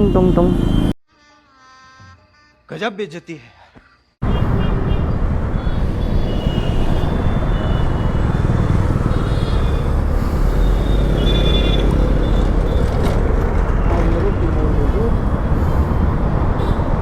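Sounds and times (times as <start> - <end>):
motorcycle engine and road rumble: 4.2 - 17.0.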